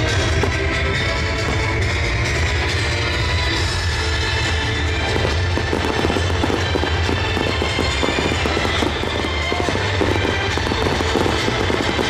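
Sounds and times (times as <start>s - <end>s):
fireworks crackling and popping: 0.0s - 12.0s
music playing: 0.0s - 12.0s.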